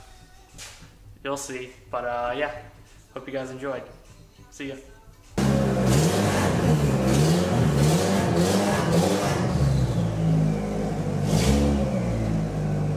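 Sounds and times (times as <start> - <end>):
car engine revving: 5.4 - 12.9.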